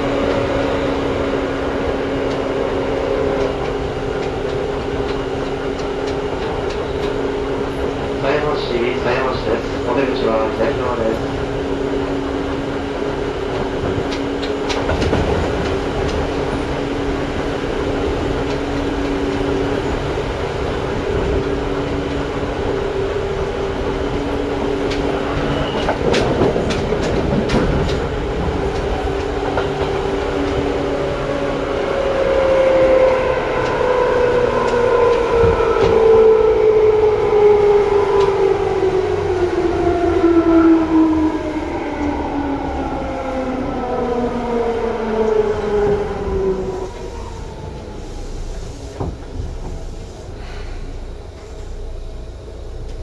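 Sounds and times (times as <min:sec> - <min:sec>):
train running gear hum: 0:00.0 - 0:53.0
wheels clicking over rail joints: 0:02.0 - 0:11.3, 0:13.0 - 0:31.2.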